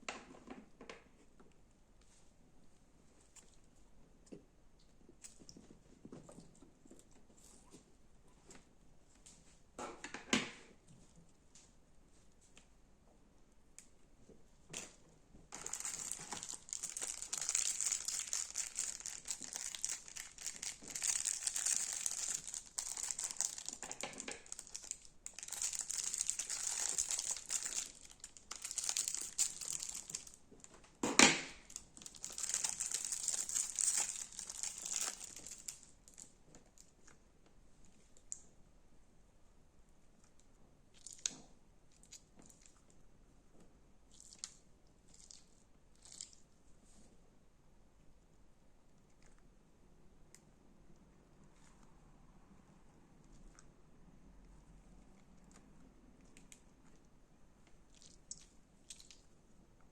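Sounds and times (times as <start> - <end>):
crunchy slime crackling: 15.5 - 30.5, 31.6 - 36.3.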